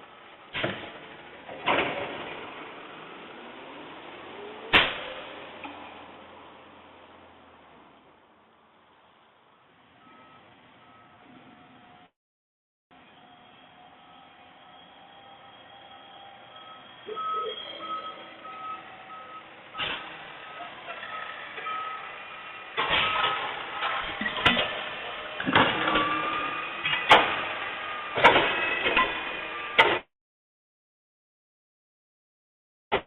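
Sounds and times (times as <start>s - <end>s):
garbage truck running: 0.0s - 8.0s, 12.9s - 30.0s
reversing alarm beeping: 10.0s - 12.1s, 13.0s - 24.0s, 25.8s - 29.8s.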